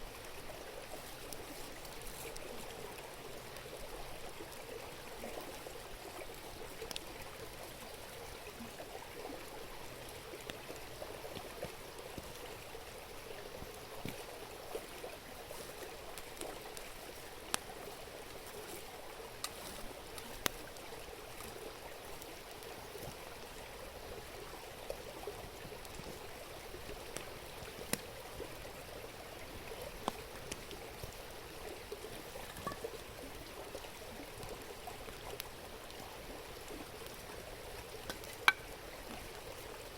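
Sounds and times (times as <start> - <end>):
campfire crackling and popping: 0.8 - 4.7, 5.6 - 7.9, 13.6 - 39.9
river murmuring: 11.9 - 39.9.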